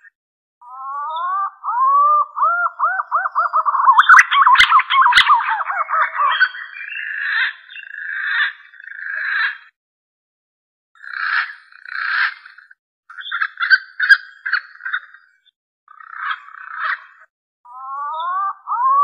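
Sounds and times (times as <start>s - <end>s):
green pigeon whistling song: 0.7s - 8.0s, 17.8s - 19.0s.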